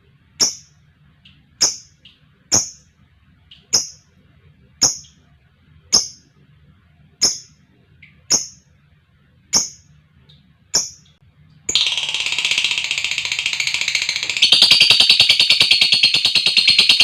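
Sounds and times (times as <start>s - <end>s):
lovebird chirping and trilling: 0.4s - 2.8s, 3.5s - 4.0s, 4.8s - 5.2s, 5.9s - 6.2s, 7.2s - 8.6s, 9.5s - 9.9s, 10.7s - 11.1s, 11.7s - 17.0s.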